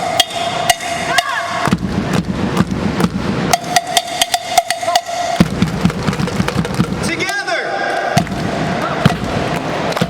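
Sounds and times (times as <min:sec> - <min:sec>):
sharp percussion strikes: 0:00.0 - 0:07.5.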